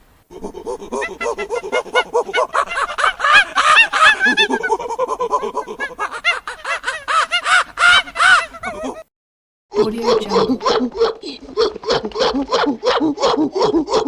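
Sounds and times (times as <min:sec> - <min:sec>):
rapid short animal calls: 0:00.3 - 0:09.0.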